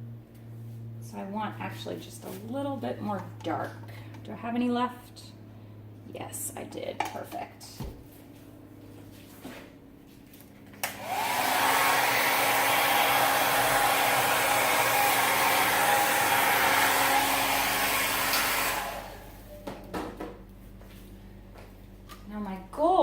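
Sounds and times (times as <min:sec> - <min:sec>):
hair dryer switch click: 0:10.8 - 0:11.2, 0:18.2 - 0:18.8
hair dryer blowing: 0:10.8 - 0:19.5.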